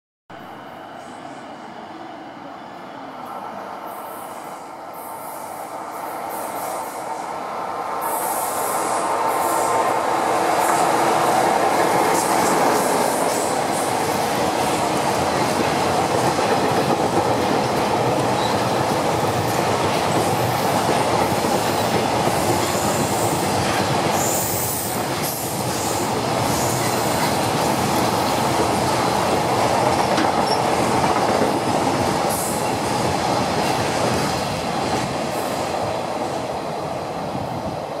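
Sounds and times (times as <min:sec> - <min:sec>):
steel wheels clattering on rail: 0:08.3 - 0:35.7.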